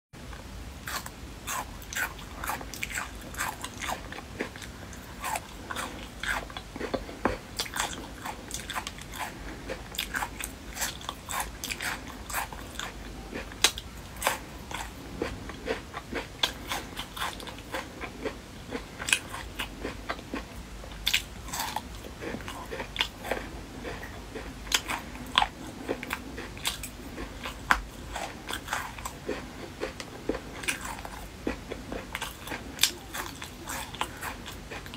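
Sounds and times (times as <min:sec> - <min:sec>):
person chewing crunchy food: 0:00.8 - 0:34.9.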